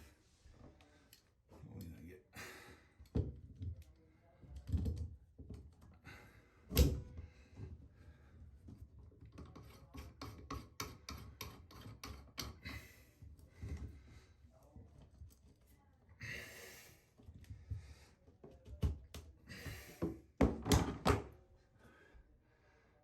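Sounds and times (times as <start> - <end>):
hand tools scraping on drain: 8.5 - 14.1.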